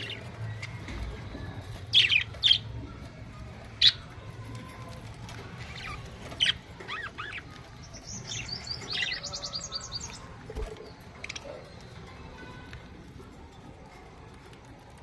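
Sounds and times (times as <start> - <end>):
budgerigars chirping and warbling: 0.0 - 12.0.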